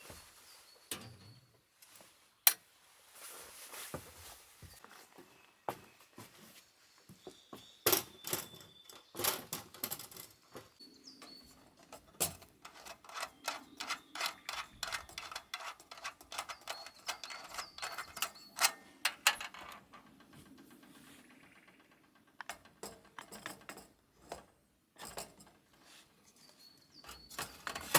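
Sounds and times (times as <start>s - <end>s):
hard objects clicking and knocking: 7.9s - 25.6s.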